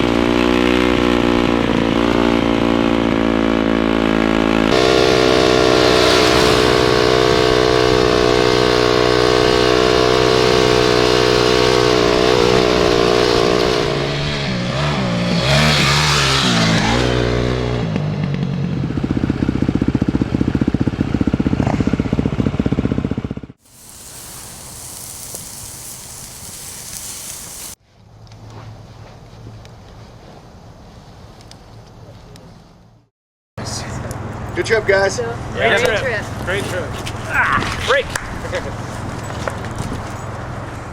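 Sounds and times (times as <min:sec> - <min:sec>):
dirt bike engines revving: 0:04.7 - 0:16.4, 0:23.7 - 0:27.8.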